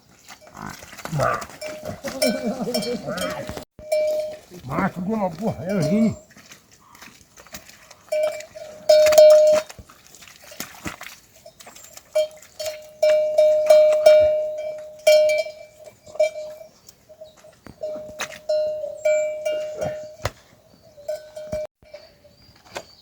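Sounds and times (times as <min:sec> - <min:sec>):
metal livestock bell clanking: 0:00.2 - 0:06.3, 0:08.0 - 0:09.8, 0:11.3 - 0:20.2, 0:21.0 - 0:22.1.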